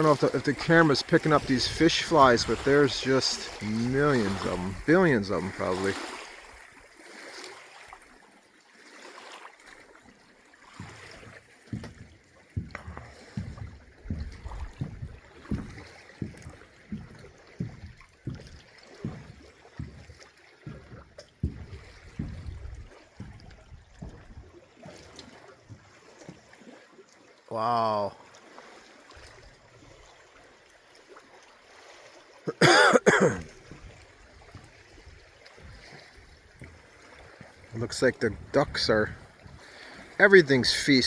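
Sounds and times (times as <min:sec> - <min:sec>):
water lapping at shore: 0:00.0 - 0:41.0
soft low thumps: 0:11.8 - 0:24.4.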